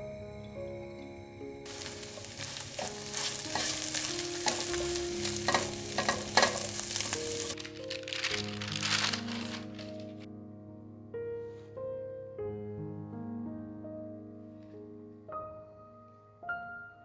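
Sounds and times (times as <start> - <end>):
food sizzling in a frying pan: 1.7 - 10.0
sharp pops from frying: 1.7 - 10.0.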